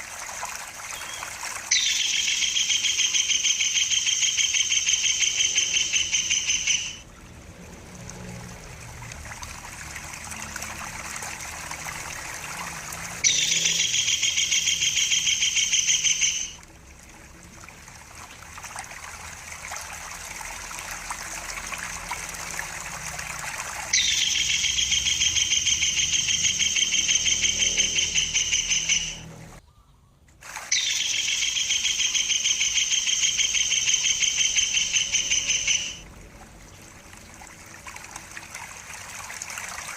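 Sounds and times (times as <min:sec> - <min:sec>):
running water trickle: 0:00.0 - 0:29.6, 0:30.3 - 0:39.9
kingfisher trilling calls: 0:00.9 - 0:07.0, 0:13.2 - 0:16.6, 0:23.6 - 0:29.3, 0:30.7 - 0:36.0.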